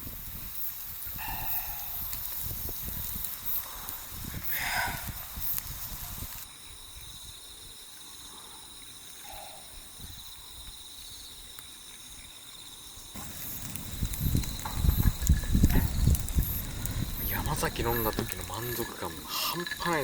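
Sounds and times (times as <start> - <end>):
insects trilling: 0.0 - 20.0
rustling rumbling noise: 13.2 - 20.0.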